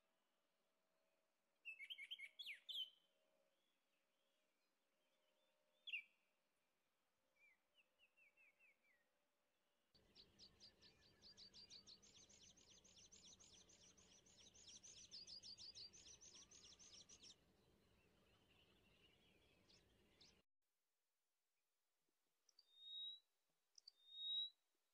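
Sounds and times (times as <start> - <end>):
small bird singing trills: 1.7 - 3.0, 10.0 - 17.4, 22.5 - 23.2, 23.8 - 24.6.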